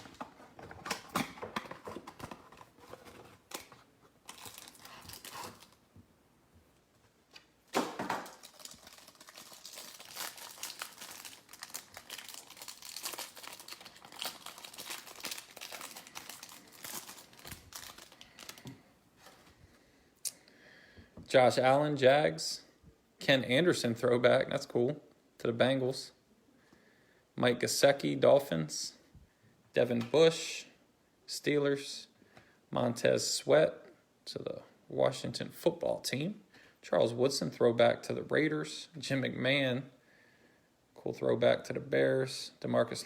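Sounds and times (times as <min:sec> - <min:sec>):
plastic wrapper tearing and crinkling: 0:03.5 - 0:05.8, 0:08.1 - 0:18.7.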